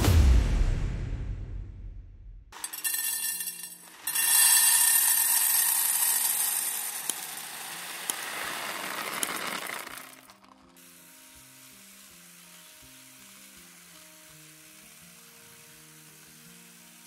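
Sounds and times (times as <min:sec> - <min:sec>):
food sizzling in hot oil: 0:02.6 - 0:17.0
soft background music: 0:10.8 - 0:17.0.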